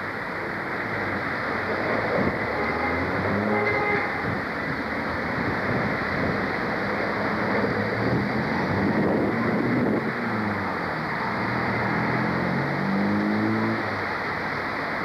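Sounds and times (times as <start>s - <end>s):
locomotive engine drone: 0.0s - 15.0s
wind on microphone: 3.6s - 10.8s.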